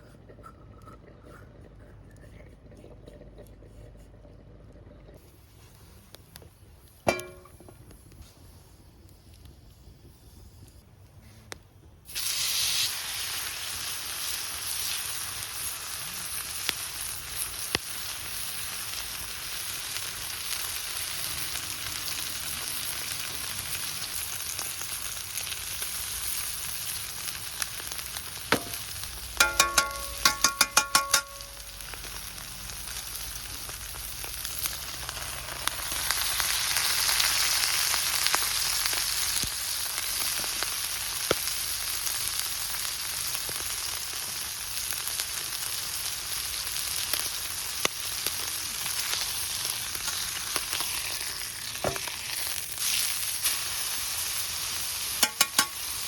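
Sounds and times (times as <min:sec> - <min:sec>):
sizzling hiss: 0:12.0 - 0:56.0.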